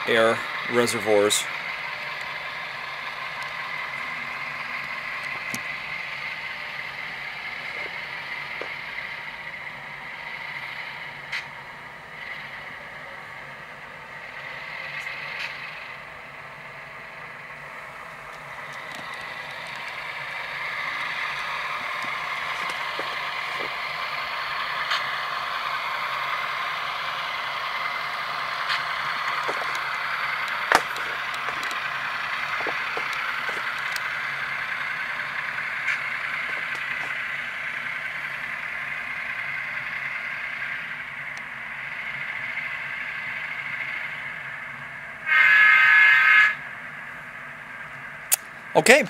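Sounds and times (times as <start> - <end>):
model locomotive diesel engine sound: 0.0 - 49.0
sharp clicks: 28.6 - 34.2, 48.3 - 48.6.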